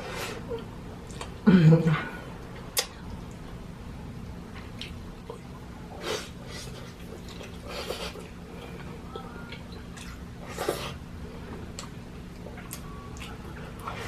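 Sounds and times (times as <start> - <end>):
person chewing: 4.6 - 14.0.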